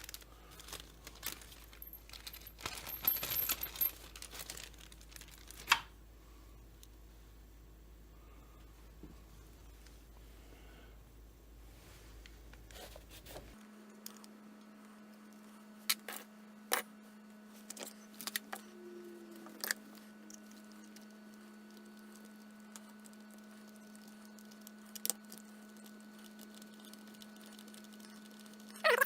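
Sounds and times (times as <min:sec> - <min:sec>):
small parts clicking and tapping: 0:00.0 - 0:05.8
faint steady hum: 0:00.0 - 0:29.0.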